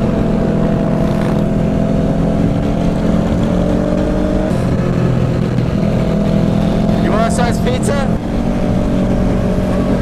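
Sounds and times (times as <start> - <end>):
wind noise on microphone: 0.0 - 7.2, 7.8 - 10.0
motorcycle engine shifting gear: 0.0 - 7.5.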